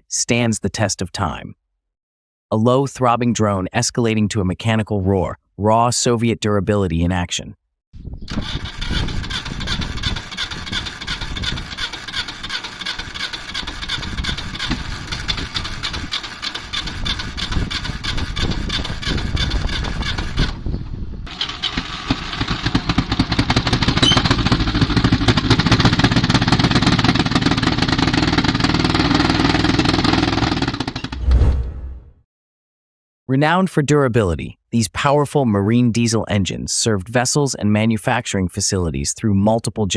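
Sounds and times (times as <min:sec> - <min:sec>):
diesel engine throbbing: 0:21.3 - 0:31.3.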